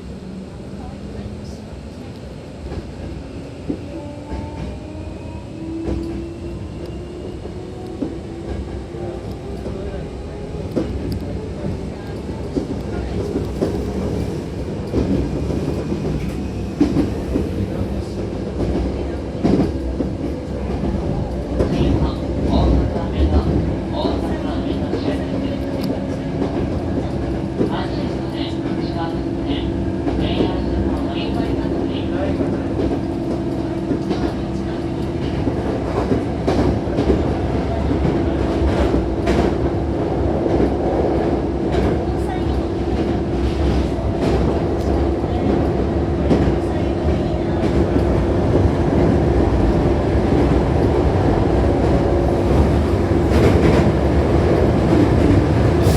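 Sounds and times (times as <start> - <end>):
train wheels rumbling on rails: 0.0 - 55.9.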